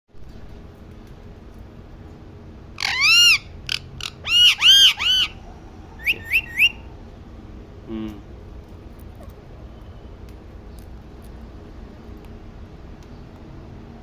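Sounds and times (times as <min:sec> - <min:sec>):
parrot whistle-like calls: 0:02.8 - 0:05.4, 0:06.0 - 0:06.9
parrot short rising chirps: 0:02.8 - 0:06.9.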